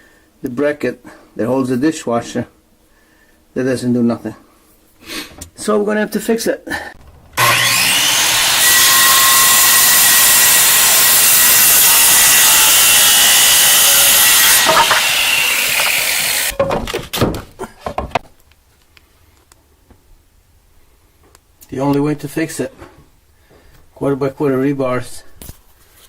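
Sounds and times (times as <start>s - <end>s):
power tool cutting stone: 7.4s - 16.5s.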